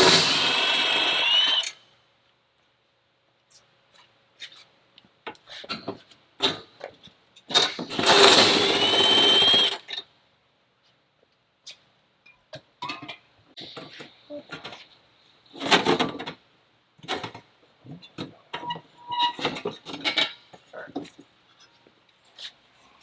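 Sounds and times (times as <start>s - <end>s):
power tool motor whine: 0.0s - 1.8s, 7.9s - 9.8s.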